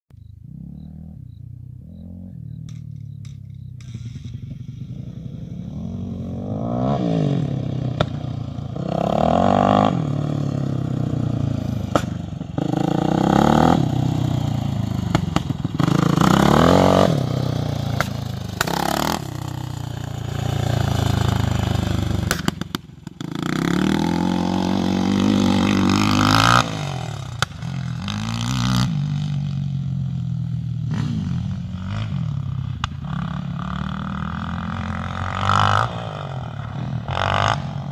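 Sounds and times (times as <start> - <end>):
engine revving: 0.2 - 37.9
exhaust pops: 2.5 - 5.2, 7.9 - 8.4, 11.8 - 12.8, 20.4 - 23.2.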